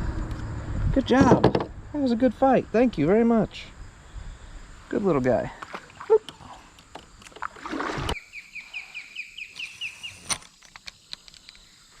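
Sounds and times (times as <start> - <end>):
bird chirping: 8.2 - 10.4.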